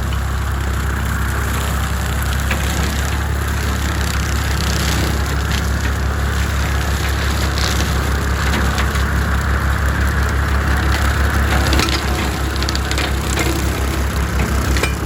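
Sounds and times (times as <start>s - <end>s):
tractor engine drone: 0.0s - 15.0s
brush cracking and snapping: 1.8s - 15.0s.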